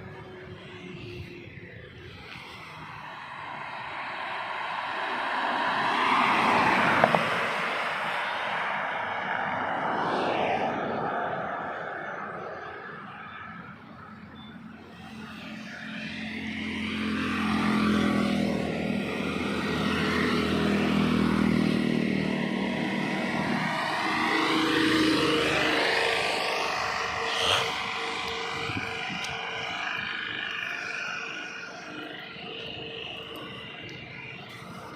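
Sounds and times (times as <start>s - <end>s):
trucks driving past: 0.0s - 34.9s.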